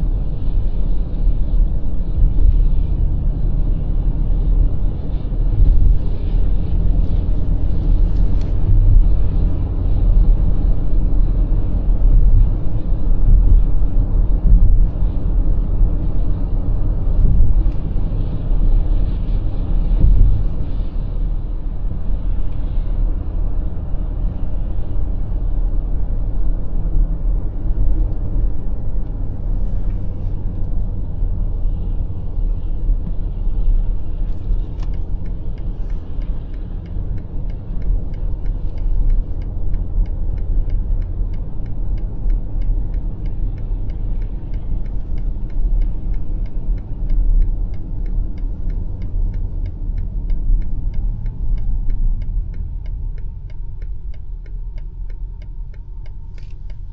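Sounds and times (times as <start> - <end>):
car interior road rumble: 0.0 - 56.9
turn signal ticking: 34.1 - 56.9.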